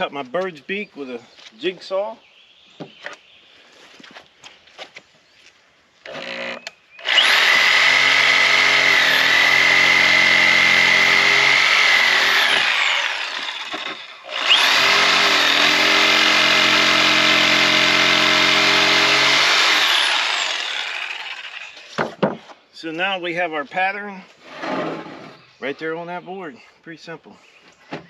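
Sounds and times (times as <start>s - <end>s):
jigsaw cutting wood: 6.1s - 22.2s.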